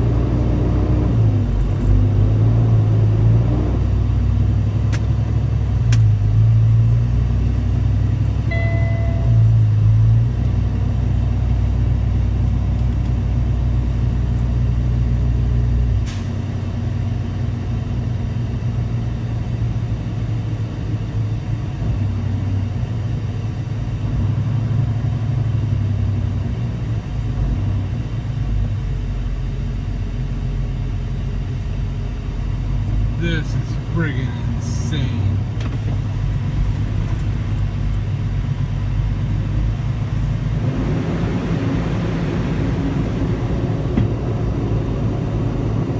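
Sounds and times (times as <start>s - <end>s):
diesel truck engine running: 0.0s - 45.9s
brief tone: 8.5s - 9.7s.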